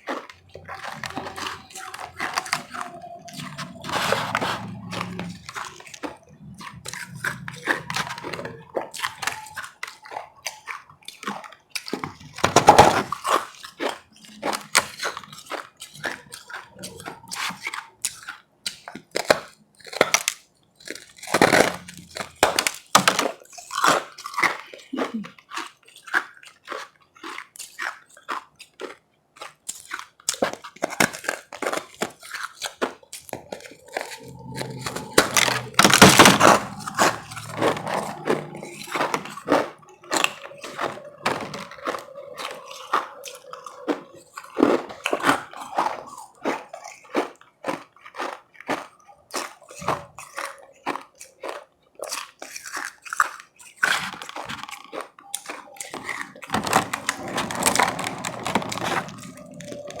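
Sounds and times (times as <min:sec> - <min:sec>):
ice being chewed: 0:00.0 - 1:00.0.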